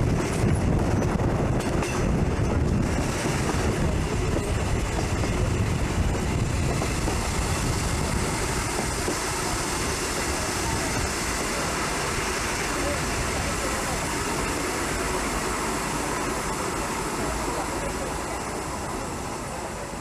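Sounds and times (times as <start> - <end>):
rail clatter: 0.0 - 20.0
train rumbling on track: 0.0 - 20.0.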